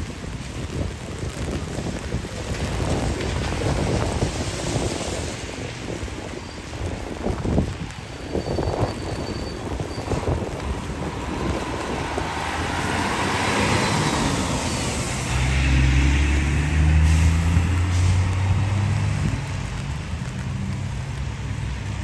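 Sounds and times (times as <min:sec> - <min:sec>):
tyres hissing on wet road: 0:00.0 - 0:22.0
heavy vehicle engine humming: 0:05.3 - 0:22.0.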